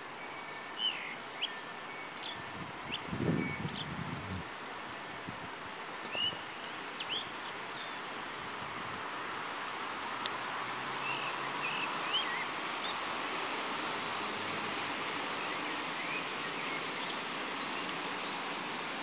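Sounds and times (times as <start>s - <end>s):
distant train hiss: 0.0s - 19.0s
bird chirps: 6.1s - 8.0s, 11.0s - 13.0s.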